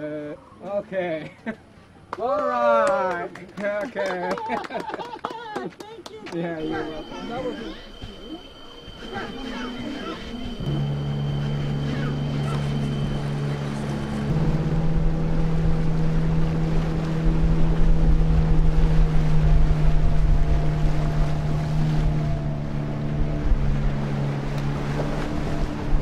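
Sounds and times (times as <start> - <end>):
water and wind noise: 0.0 - 26.0
motorboat engine running: 6.6 - 26.0.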